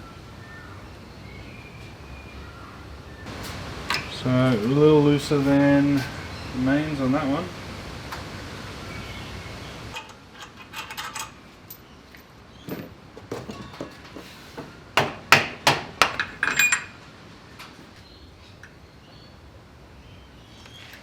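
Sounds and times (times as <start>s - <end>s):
tools knocking and clinking: 10.0s - 17.0s.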